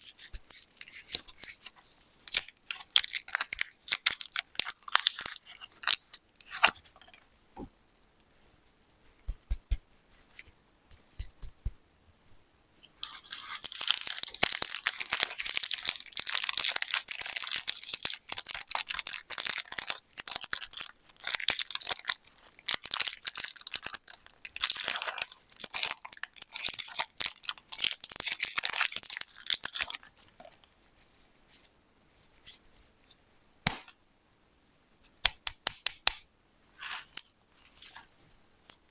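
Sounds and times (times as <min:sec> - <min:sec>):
plastic wrappers crinkling and tearing: 0:00.0 - 0:07.1, 0:13.0 - 0:30.6.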